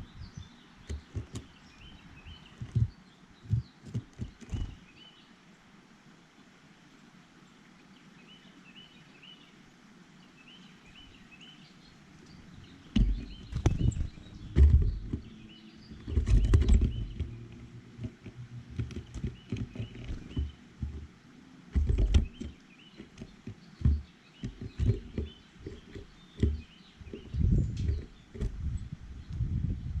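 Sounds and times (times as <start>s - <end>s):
birds pecking on feeder: 0.8s - 5.0s, 12.2s - 28.8s.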